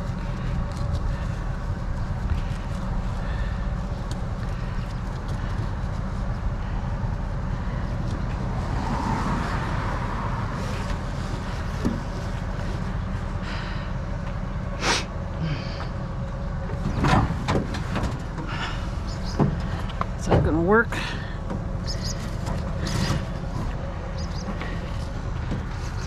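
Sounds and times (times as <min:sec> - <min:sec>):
vehicle rumbling: 0:00.0 - 0:26.0
items knocking in a truck: 0:16.7 - 0:20.7.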